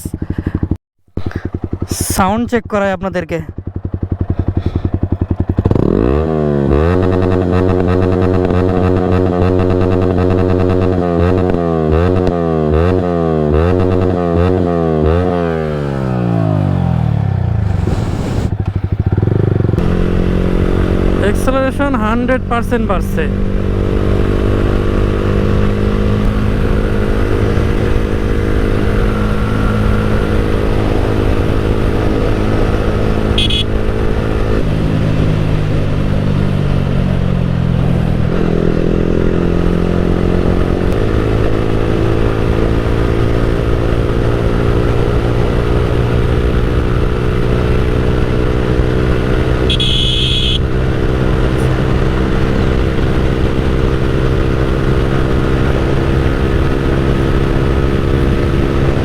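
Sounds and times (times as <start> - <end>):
motorcycle engine running: 0.0 - 59.0
high-pitched tone: 33.4 - 33.7, 49.7 - 50.6.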